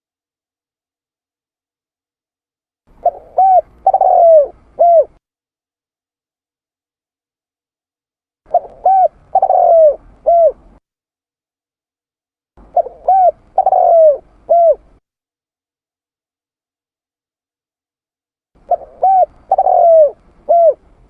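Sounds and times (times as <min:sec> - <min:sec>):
dove cooing: 0:02.9 - 0:05.2, 0:08.5 - 0:10.8, 0:12.6 - 0:15.0, 0:18.6 - 0:21.0.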